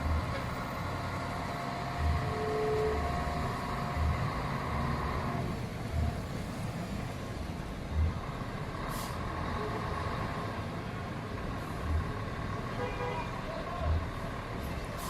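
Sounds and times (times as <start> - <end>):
heavy trucks on road: 0.0 - 15.0
air brakes hissing: 8.9 - 9.4.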